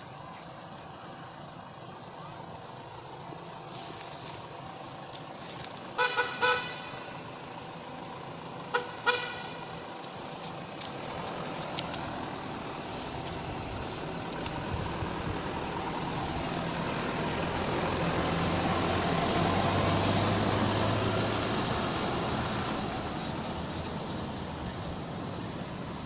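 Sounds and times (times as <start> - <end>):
passing traffic: 0.0 - 26.0
vehicle horn tooting: 6.0 - 7.0, 8.7 - 9.6.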